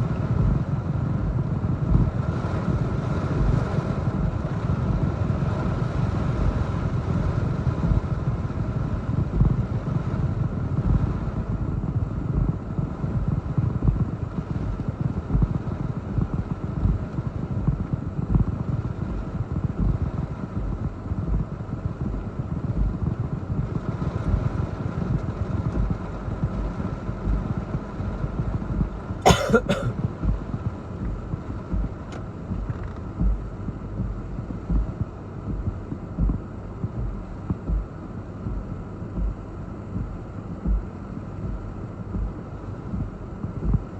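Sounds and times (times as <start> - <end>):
gusty wind buffeting microphone: 0.0 - 29.3.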